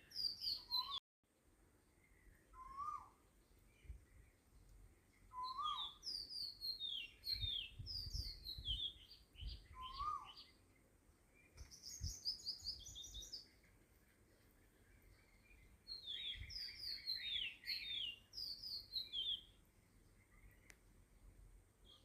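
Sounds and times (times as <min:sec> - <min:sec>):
birds chirping: 0:00.0 - 0:01.0, 0:01.8 - 0:22.0
low rising and falling bird call: 0:00.0 - 0:01.0, 0:02.2 - 0:03.2, 0:05.3 - 0:10.6, 0:11.4 - 0:13.6, 0:14.8 - 0:19.6.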